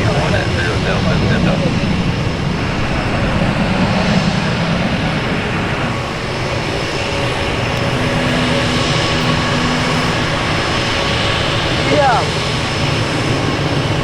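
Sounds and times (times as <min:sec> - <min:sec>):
jet engines running: 0:00.0 - 0:14.0
faint steady whine: 0:05.0 - 0:14.0.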